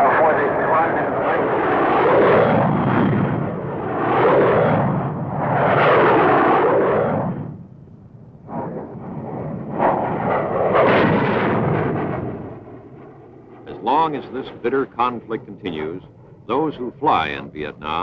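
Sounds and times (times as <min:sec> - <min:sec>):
jet aircraft roaring past: 0:00.0 - 0:18.0
sharp explosive blasts: 0:09.7 - 0:12.5.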